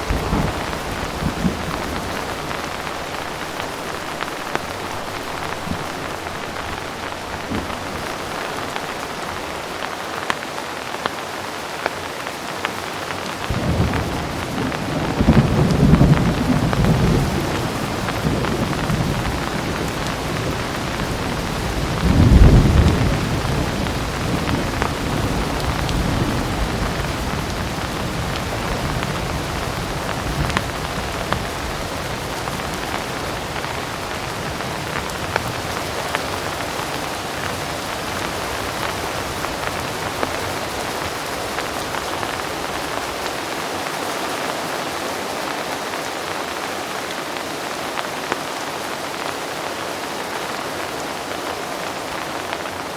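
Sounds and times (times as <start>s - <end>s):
thunder rumble: 0.0s - 10.0s, 13.4s - 43.5s
heavy rain falling: 0.0s - 52.9s.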